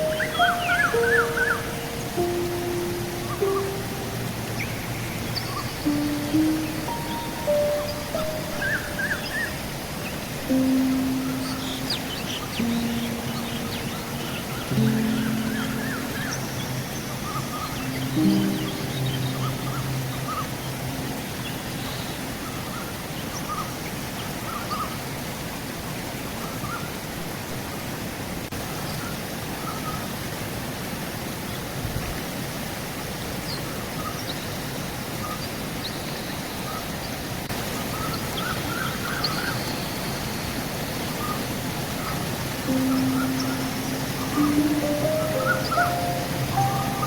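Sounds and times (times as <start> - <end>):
small birds chirping: 0.0 - 24.9, 37.8 - 47.0
river water rushing: 0.0 - 35.8, 36.7 - 47.0.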